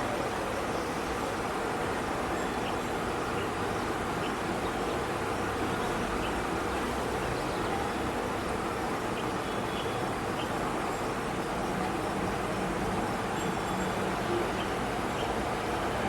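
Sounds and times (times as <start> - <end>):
distant traffic: 0.0 - 16.0.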